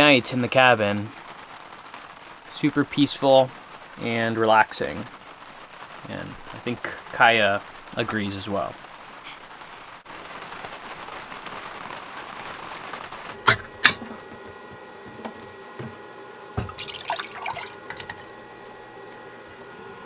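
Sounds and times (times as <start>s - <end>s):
water running: 12.5s - 20.0s
steady hum: 13.0s - 20.0s.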